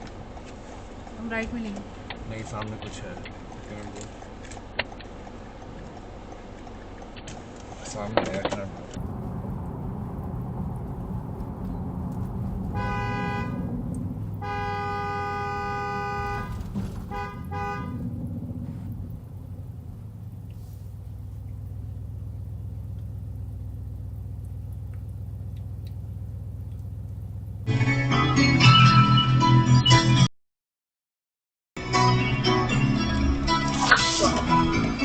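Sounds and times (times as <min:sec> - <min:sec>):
engine and road noise: 0:00.0 - 0:30.2
car horn honking: 0:09.0 - 0:18.3.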